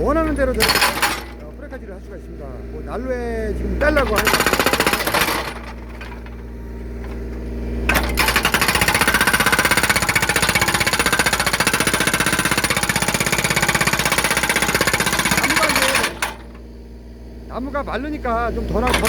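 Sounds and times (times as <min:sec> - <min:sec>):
hydraulic breaker hammering log: 0:00.0 - 0:01.8, 0:03.8 - 0:16.7, 0:18.7 - 0:19.0
excavator engine hum: 0:00.0 - 0:19.0.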